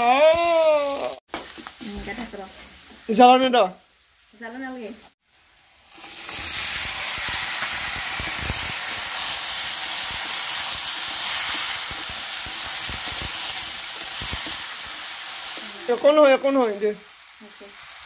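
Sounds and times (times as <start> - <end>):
vegetables sizzling in hot oil: 0.0 - 18.0
spoon knocking and scraping a wok: 10.1 - 15.7.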